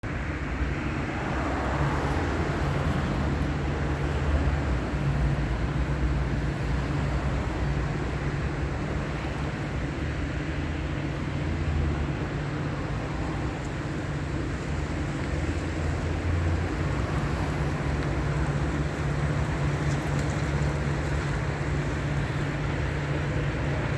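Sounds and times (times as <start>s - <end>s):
engine hum: 0.0s - 23.9s
train rumble: 0.0s - 23.9s.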